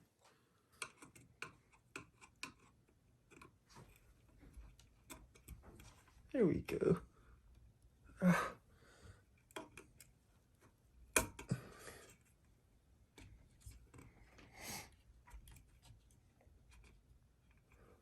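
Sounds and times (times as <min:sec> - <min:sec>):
light clicks and taps: 0:00.2 - 0:06.3.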